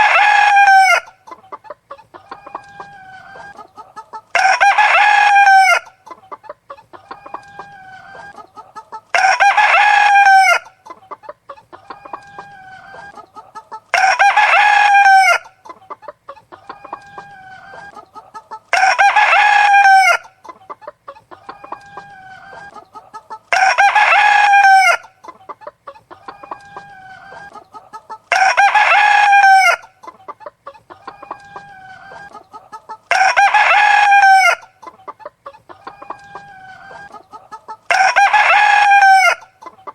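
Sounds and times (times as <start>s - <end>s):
rooster crowing: 0.0s - 1.2s, 4.3s - 5.9s, 9.1s - 10.7s, 11.8s - 15.5s, 16.6s - 20.3s, 23.5s - 25.1s, 28.3s - 29.9s, 33.1s - 34.7s, 37.9s - 39.5s
hen clucking: 0.0s - 39.9s.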